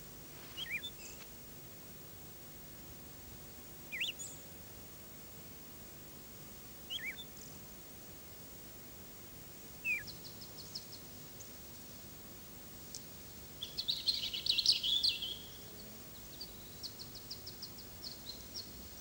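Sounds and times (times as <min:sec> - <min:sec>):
faint steady hiss and hum: 0:00.0 - 0:19.0
small bird chirping: 0:00.4 - 0:01.2, 0:03.9 - 0:04.4, 0:06.9 - 0:07.3, 0:09.8 - 0:11.1, 0:13.6 - 0:15.6.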